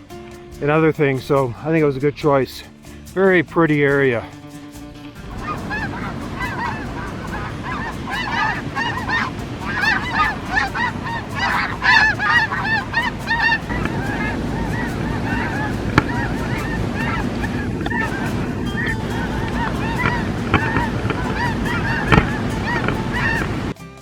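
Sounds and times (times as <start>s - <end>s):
geese honking: 0.6s - 23.8s
wind rushing: 4.9s - 23.8s.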